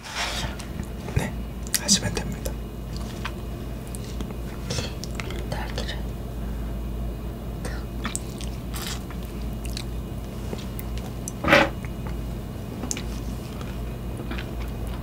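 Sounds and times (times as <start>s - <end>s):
biting and chewing strawberries: 8.0s - 12.2s, 12.8s - 15.0s.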